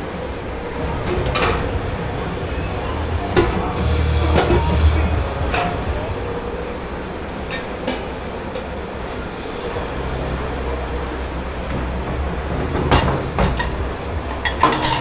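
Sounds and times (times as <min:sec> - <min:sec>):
kitchen machinery rumbling: 0:00.0 - 0:15.0
crockery clinking: 0:12.5 - 0:15.0.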